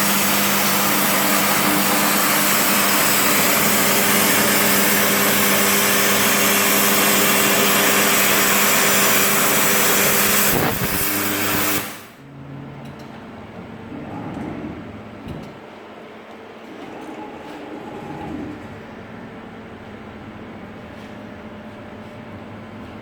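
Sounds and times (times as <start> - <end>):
plasma cutter arc hissing: 0.0 - 12.2.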